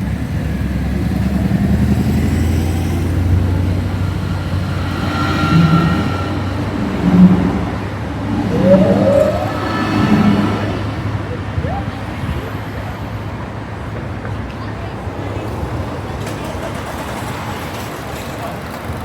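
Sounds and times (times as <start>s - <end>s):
vehicles passing: 0.1s - 14.5s
rising whine: 3.3s - 11.6s.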